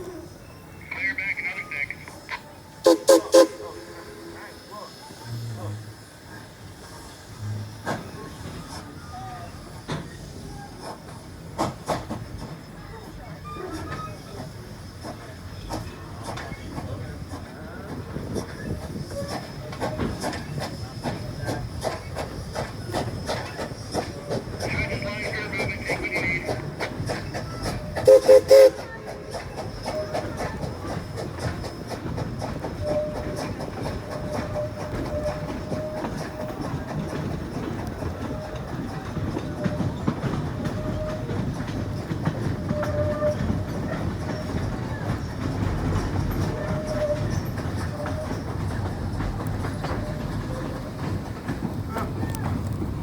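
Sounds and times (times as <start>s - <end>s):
steam locomotive whistle: 0.0s - 4.6s, 23.7s - 30.4s
train car clickety-clack: 0.0s - 53.0s.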